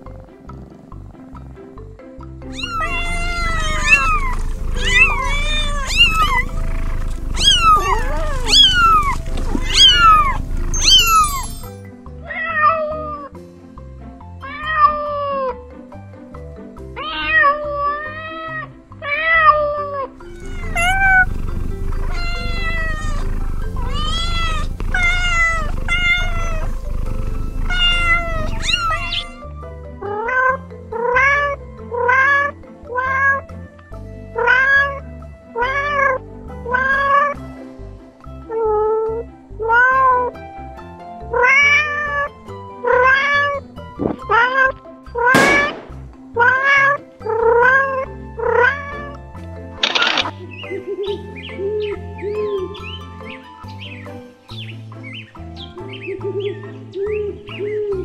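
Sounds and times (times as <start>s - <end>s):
background music: 0.0s - 58.0s
cat meowing: 2.5s - 11.6s, 17.0s - 29.4s, 41.4s - 42.3s.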